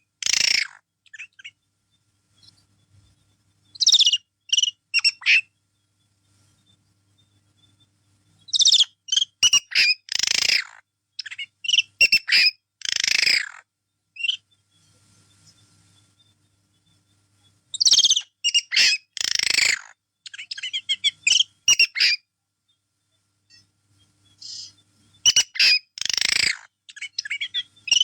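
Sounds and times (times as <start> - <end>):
parrot squawking and chirping: 0.2 - 1.5, 3.8 - 5.5, 8.5 - 13.6, 17.8 - 22.2, 24.4 - 28.0.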